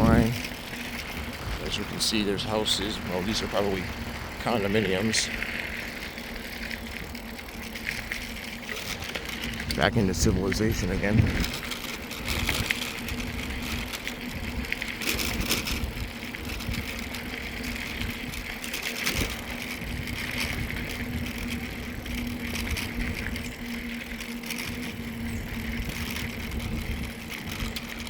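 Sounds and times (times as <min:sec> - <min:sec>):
bike tyres rumbling on trail: 0:00.0 - 0:28.0
wind on microphone: 0:09.4 - 0:28.0.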